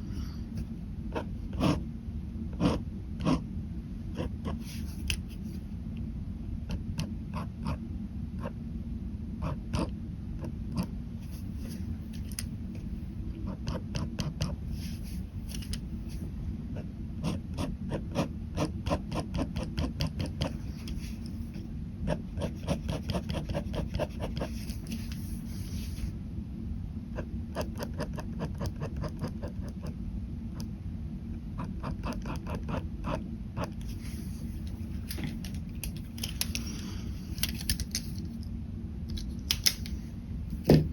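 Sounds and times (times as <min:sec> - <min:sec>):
steady low hum: 0:00.0 - 0:40.9
ballpoint pen scratching on paper: 0:01.2 - 0:01.8, 0:02.5 - 0:03.4, 0:04.2 - 0:05.2, 0:13.4 - 0:15.8, 0:16.8 - 0:21.4, 0:22.1 - 0:25.4, 0:27.2 - 0:29.9, 0:31.6 - 0:34.1.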